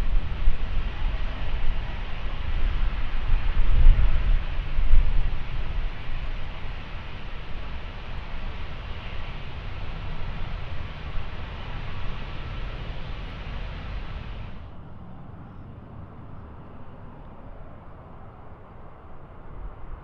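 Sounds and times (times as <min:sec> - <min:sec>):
jet airliner engines rumbling: 0:00.0 - 0:20.0.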